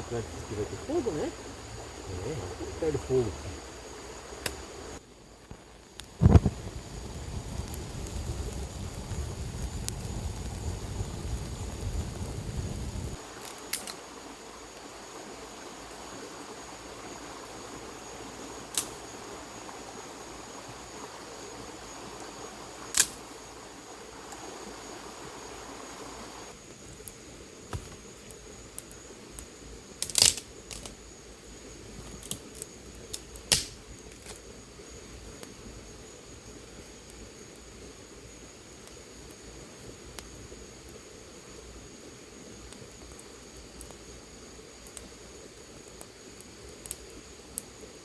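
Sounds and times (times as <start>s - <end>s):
campfire crackling: 0.0s - 48.0s.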